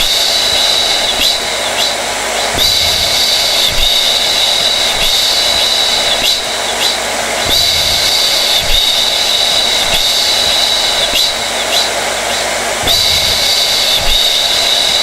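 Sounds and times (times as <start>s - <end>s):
hair dryer running: 0.0s - 15.0s.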